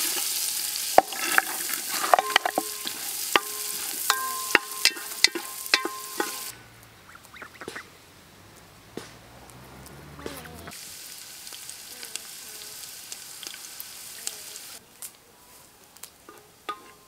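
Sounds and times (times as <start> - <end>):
carrots sizzling in hot oil: 0.0 - 6.5, 10.7 - 15.2
crackling pops: 6.5 - 15.2, 15.8 - 16.3.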